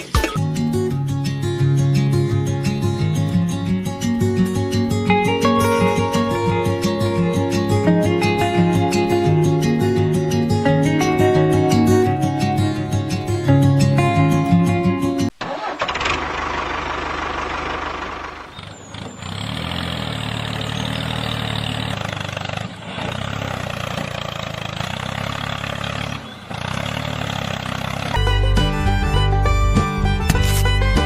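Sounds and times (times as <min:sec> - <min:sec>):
engine running: 0:15.3 - 0:31.0.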